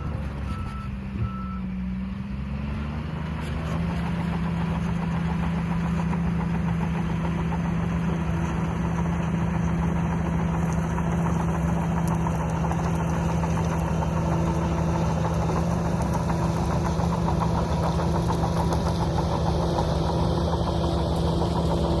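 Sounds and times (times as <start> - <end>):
bulldozer engine running: 0.0 - 22.0.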